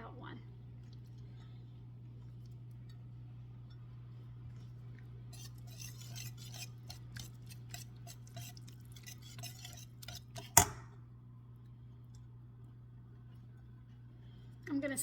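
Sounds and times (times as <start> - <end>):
spoon scraping: 4.5 - 10.8.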